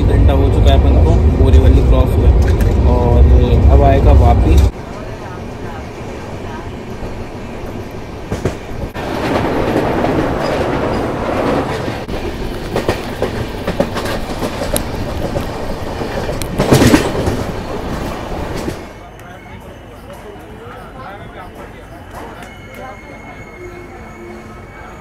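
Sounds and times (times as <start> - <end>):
train rumble and rushing air: 0.0 - 25.0
wheels clacking over rail joints: 8.2 - 19.0.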